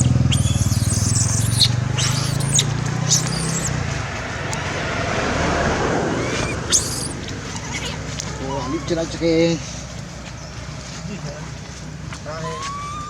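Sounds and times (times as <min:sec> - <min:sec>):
baby monkey squeaking: 0:00.0 - 0:03.8, 0:06.2 - 0:09.2, 0:12.3 - 0:13.0
steady low hum: 0:00.0 - 0:12.1.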